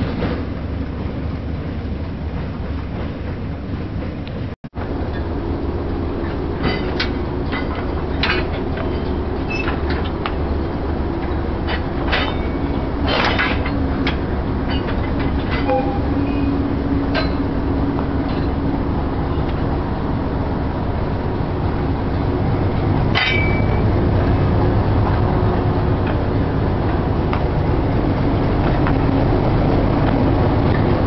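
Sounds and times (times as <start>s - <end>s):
rumble of train wheels: 0.0s - 31.0s
metallic clanks: 6.2s - 10.4s, 11.2s - 17.5s, 23.1s - 23.9s.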